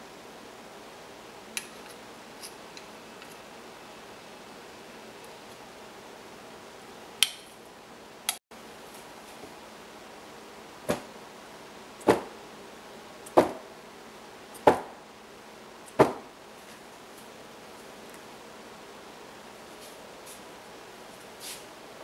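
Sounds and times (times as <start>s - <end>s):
knocks on a hard surface: 13.4s - 13.6s, 16.0s - 16.2s.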